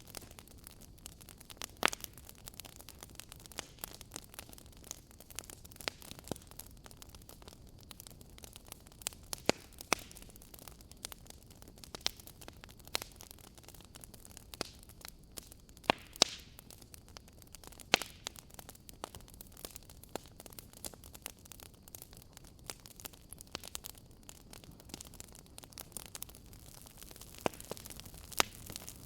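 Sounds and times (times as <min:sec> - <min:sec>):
faint steady hiss: 0:00.0 - 0:29.0
wood fire crackling: 0:00.0 - 0:29.0.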